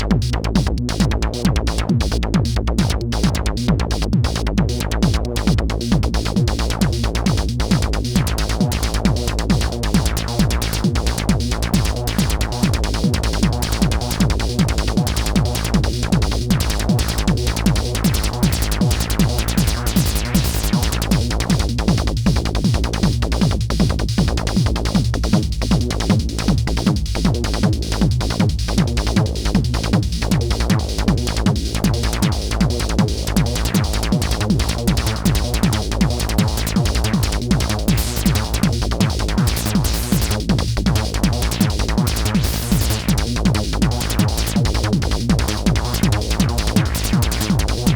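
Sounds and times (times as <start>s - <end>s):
electronic beat with heavy bass: 0.0s - 47.9s
repeating synth patterns: 33.2s - 40.3s, 41.0s - 44.6s.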